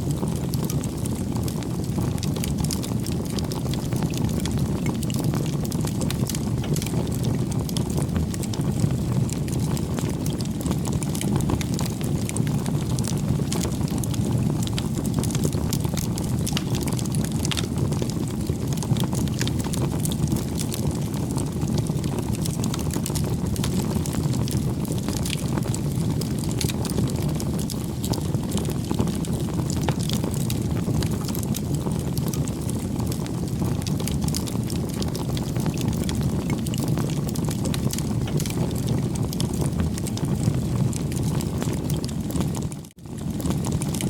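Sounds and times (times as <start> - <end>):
bonfire flames roaring: 0.0 - 44.0
fire crackling and popping: 0.0 - 44.0.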